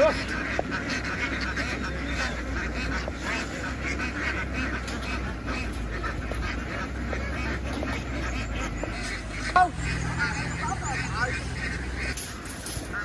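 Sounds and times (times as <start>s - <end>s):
flock of ducks quacking: 0.0s - 13.0s
steady low hum: 0.0s - 13.0s.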